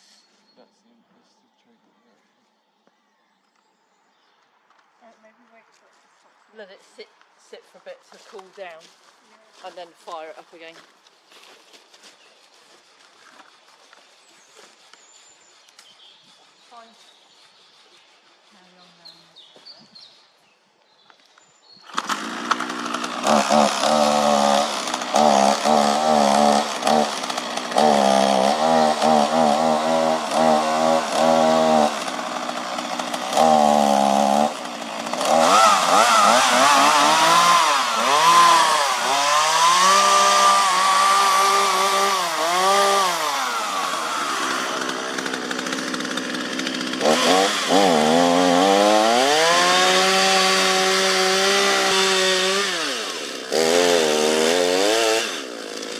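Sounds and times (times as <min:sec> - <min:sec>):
chainsaw cutting wood: 0:21.8 - 0:55.9.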